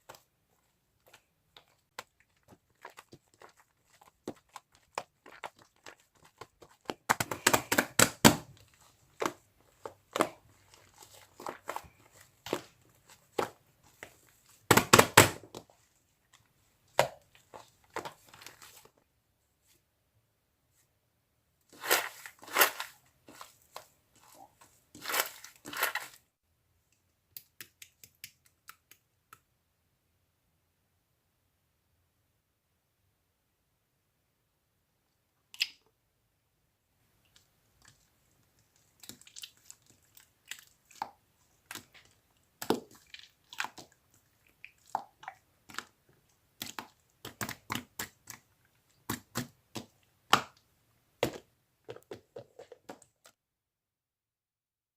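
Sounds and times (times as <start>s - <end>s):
slime squishing crackling and popping: 1.1s - 14.0s, 38.8s - 50.6s.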